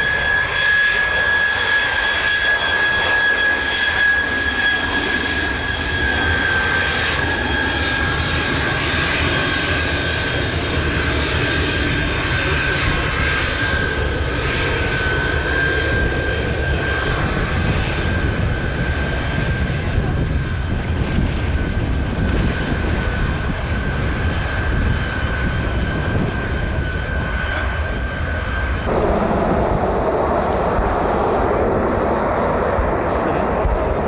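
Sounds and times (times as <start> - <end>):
jet engine whine: 0.0 - 34.0
deep rumble: 16.0 - 34.0
broad rushing noise: 28.8 - 34.0.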